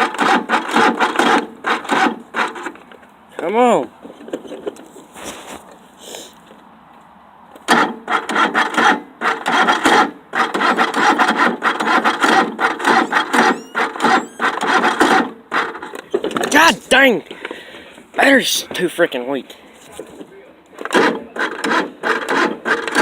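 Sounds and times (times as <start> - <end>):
starter motor cranking engine: 0.0 - 3.5, 7.7 - 16.7, 20.8 - 23.0.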